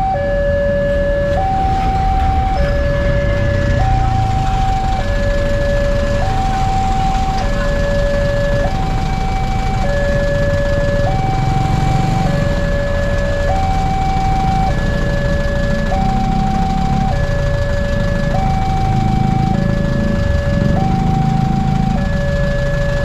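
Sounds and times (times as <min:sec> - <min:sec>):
level crossing alarm: 0:00.0 - 0:23.0.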